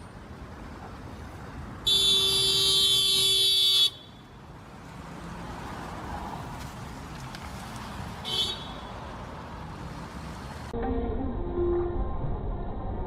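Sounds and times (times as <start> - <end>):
car driving rumble: 0.0 - 10.8
car horn blast: 1.9 - 4.1, 8.3 - 8.9.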